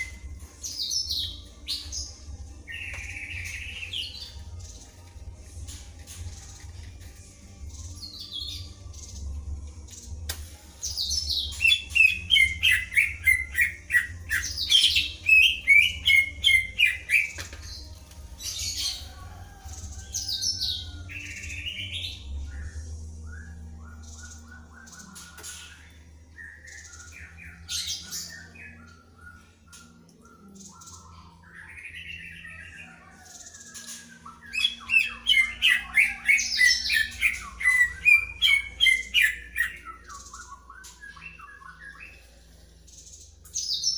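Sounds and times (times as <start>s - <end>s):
birds singing: 0.0s - 43.9s.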